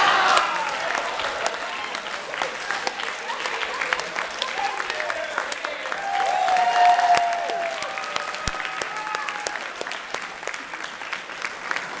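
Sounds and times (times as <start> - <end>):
audience applauding: 0.0 - 12.0
whoops and shouts: 6.0 - 9.8.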